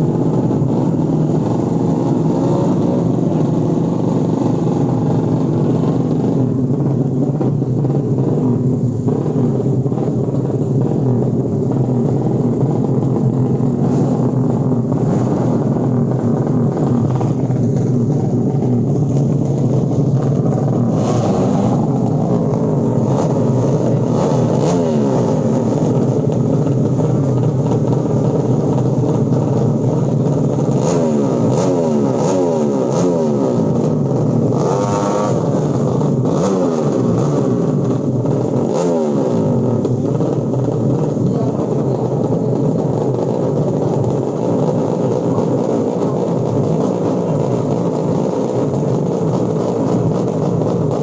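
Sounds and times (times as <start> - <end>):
motorcycle engines revving: 0.0 - 51.0.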